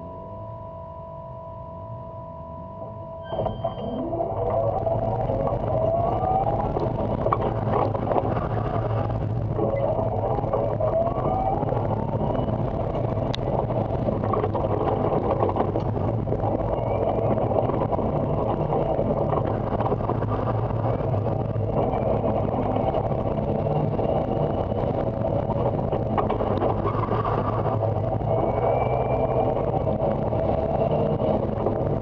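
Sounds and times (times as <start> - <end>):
car running noise: 0.0 - 32.0
electric motor whining: 2.1 - 32.0.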